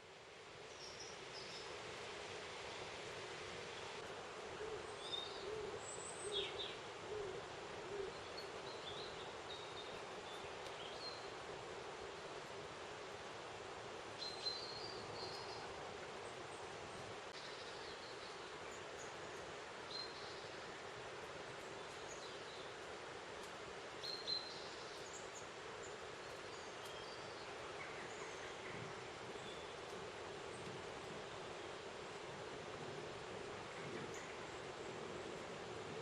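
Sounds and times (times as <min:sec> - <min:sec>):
outdoor background hiss: 0:00.0 - 0:36.0.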